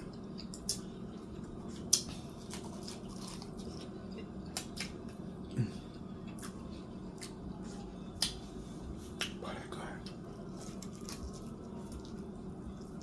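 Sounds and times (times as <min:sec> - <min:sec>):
faint low hum: 0:00.0 - 0:13.0
person chewing: 0:00.3 - 0:00.9, 0:01.7 - 0:07.4, 0:08.2 - 0:08.4, 0:10.0 - 0:13.0.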